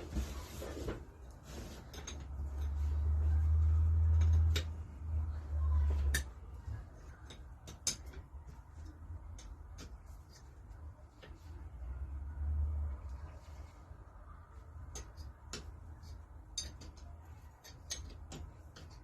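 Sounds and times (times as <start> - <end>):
metal parts clicking and tapping: 1.8 - 11.5, 14.8 - 19.0.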